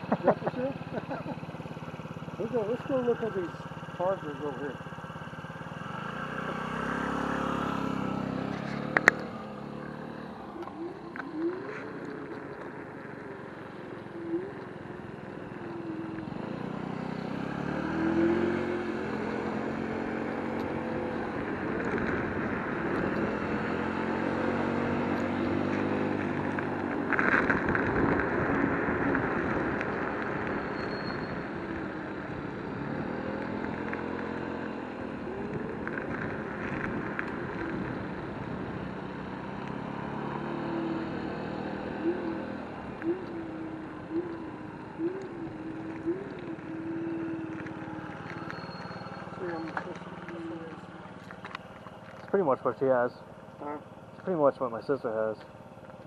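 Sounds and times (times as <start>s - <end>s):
wind and road noise: 0.0s - 56.0s
electric scooter motor whining: 4.8s - 26.9s, 41.7s - 52.3s.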